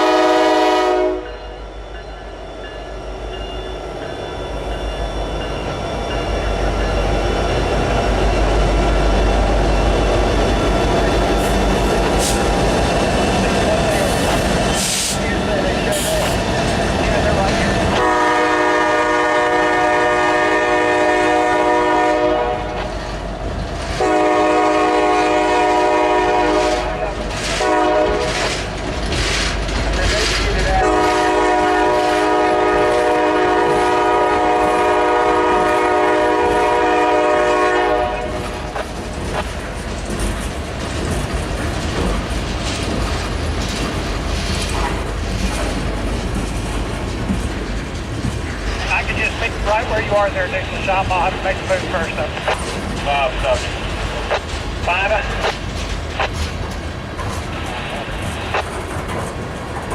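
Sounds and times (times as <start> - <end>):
locomotive air horn blasts: 0.0 - 1.3, 18.0 - 22.9, 24.0 - 28.5, 30.8 - 38.5
grade crossing signal: 0.0 - 23.3, 47.6 - 59.0
passing train rumble and clatter: 0.0 - 59.9.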